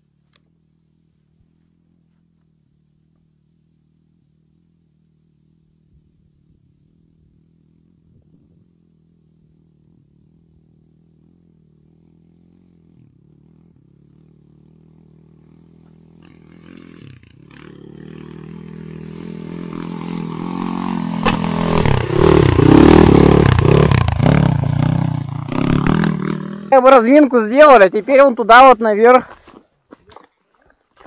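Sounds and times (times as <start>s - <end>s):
dirt bike engine revving: 12.4s - 28.8s.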